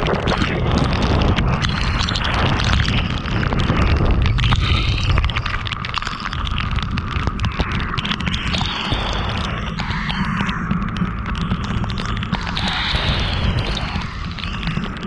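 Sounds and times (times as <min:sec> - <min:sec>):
road and wind rumble: 0:00.0 - 0:08.7
rain pattering on car: 0:00.0 - 0:15.0.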